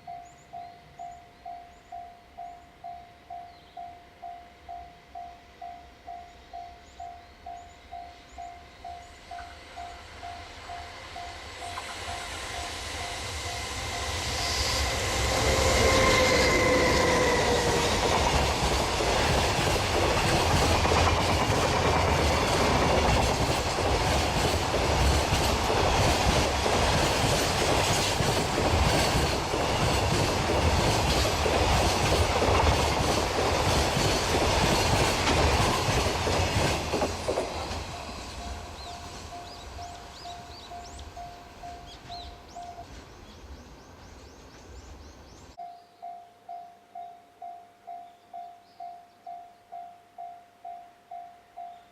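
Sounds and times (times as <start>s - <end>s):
electric locomotive whine: 0.0s - 51.9s
wagons rattling over rails: 11.8s - 40.2s.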